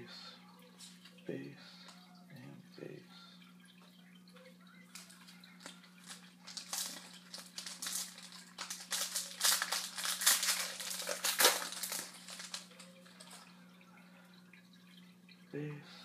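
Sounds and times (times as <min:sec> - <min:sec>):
foil wrapper crinkling: 0:04.9 - 0:13.5.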